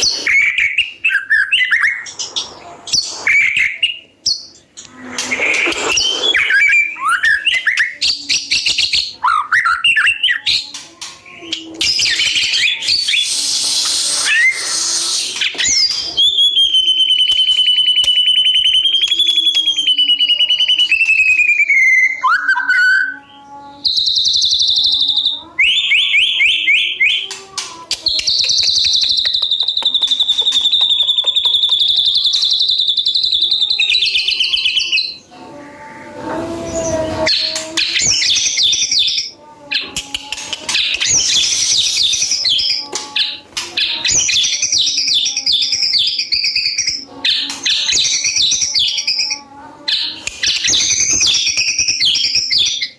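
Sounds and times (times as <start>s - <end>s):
songbird singing: 28.0s - 35.3s.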